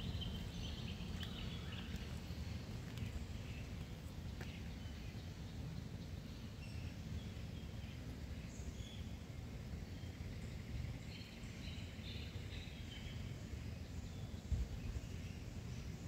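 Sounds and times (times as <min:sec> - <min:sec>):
birds chirping: 0:00.0 - 0:16.0
low outdoor rumble: 0:00.0 - 0:16.0.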